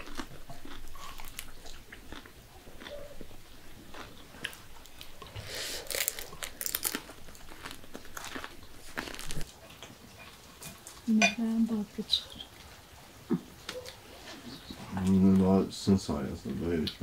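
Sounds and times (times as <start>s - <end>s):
crusty bread crunching: 0.0s - 11.1s
man chewing: 0.0s - 11.1s, 12.6s - 15.2s.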